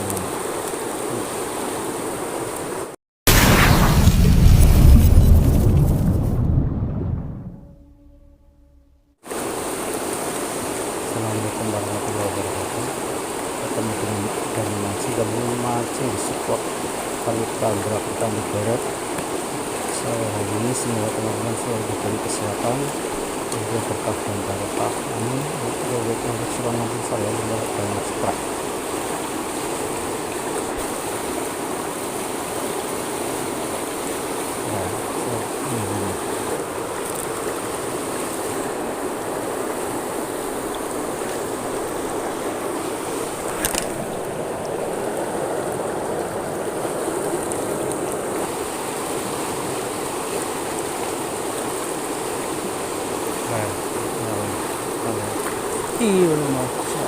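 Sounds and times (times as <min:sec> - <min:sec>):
river water rushing: 0:00.0 - 0:03.4, 0:09.3 - 0:57.0
sharp click: 0:43.6 - 0:43.9.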